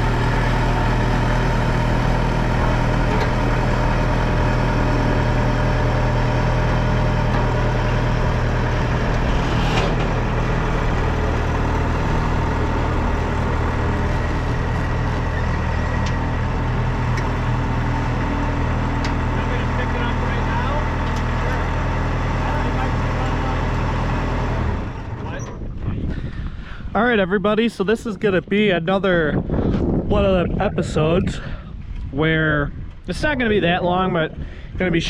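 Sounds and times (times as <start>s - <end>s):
engine idling: 0.0s - 26.9s.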